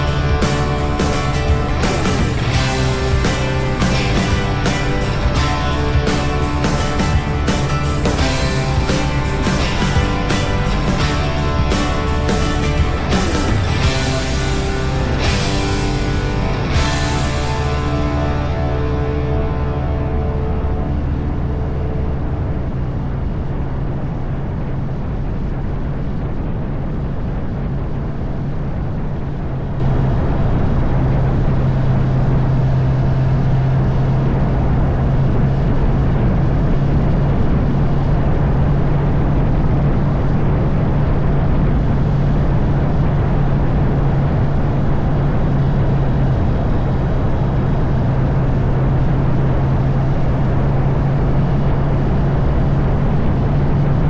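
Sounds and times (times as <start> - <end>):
motorcycle engine humming: 0.0 - 24.0
wind and road noise: 0.0 - 54.0.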